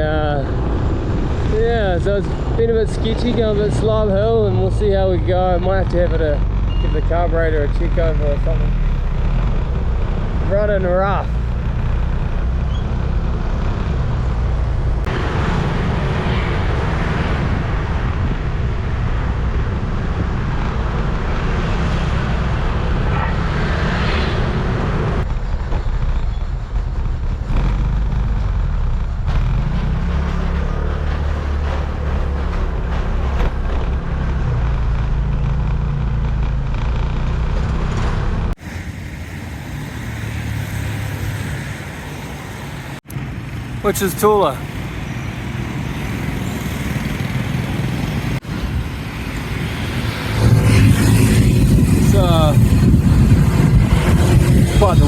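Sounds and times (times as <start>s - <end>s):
road traffic: 0.0s - 55.0s
wind noise: 45.4s - 55.0s.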